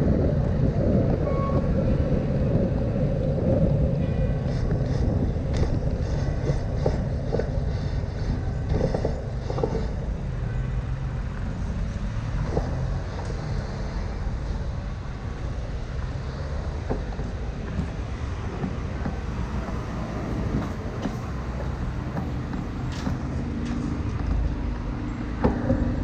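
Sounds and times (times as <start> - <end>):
bicycle rattles and clicks: 0.0 - 26.0
traffic and wind rumble: 0.0 - 26.0.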